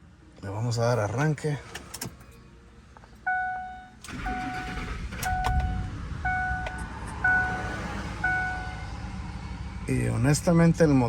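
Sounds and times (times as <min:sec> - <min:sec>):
dashboard warning chime beeping: 0:03.2 - 0:09.0
truck engine starting and idling: 0:04.0 - 0:11.0.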